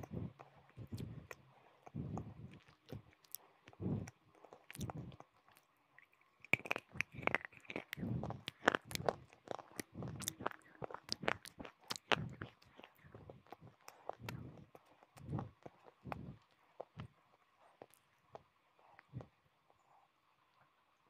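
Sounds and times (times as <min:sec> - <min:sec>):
crunching hard brittle food: 0:04.4 - 0:16.1.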